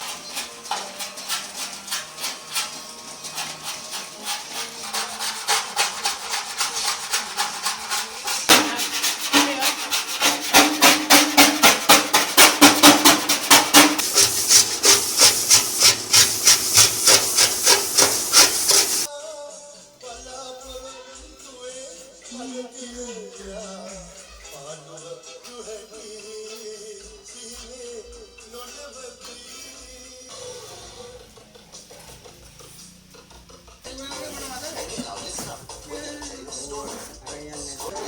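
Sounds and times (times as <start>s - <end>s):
abrasive rubbing strokes: 0.0s - 19.1s, 30.3s - 38.0s.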